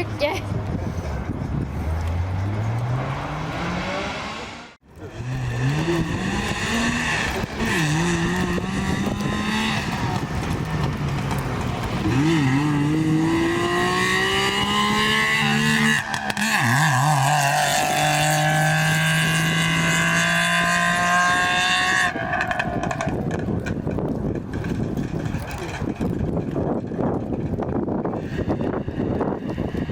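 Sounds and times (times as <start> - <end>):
rally car engine shifting gears: 1.1 - 29.9.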